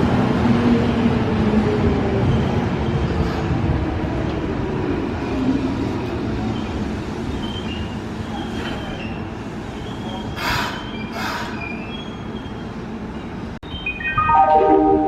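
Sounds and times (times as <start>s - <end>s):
train wheels squealing: 6.4s - 14.0s
electronic chime tune: 13.6s - 15.0s.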